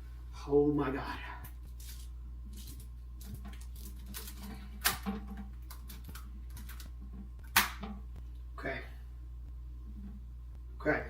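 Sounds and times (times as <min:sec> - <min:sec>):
rubber band sharp snaps: 0:07.4 - 0:08.0.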